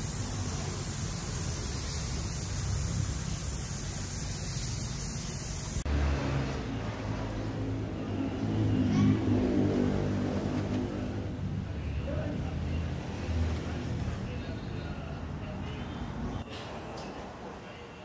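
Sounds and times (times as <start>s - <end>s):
spray gun hissing: 0.0s - 5.9s.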